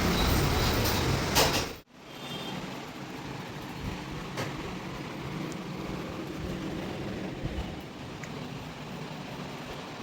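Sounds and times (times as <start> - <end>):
vehicle road and engine noise: 0.0 - 10.0.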